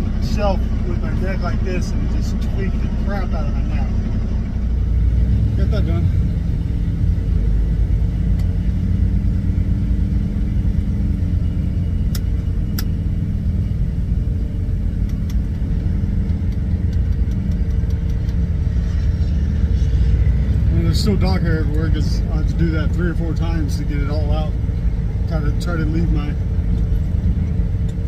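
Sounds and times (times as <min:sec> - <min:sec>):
truck diesel engine running: 0:00.0 - 0:28.0
sharp clicks: 0:15.0 - 0:18.4.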